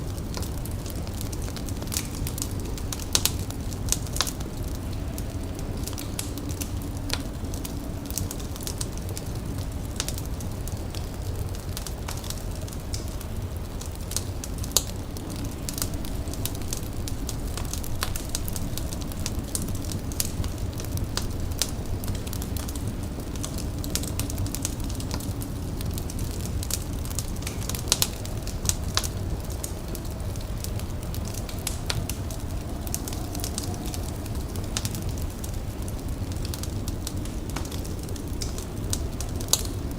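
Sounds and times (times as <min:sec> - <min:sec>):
wood fire crackling and popping: 0:00.0 - 0:39.9
low rumble: 0:00.6 - 0:39.9.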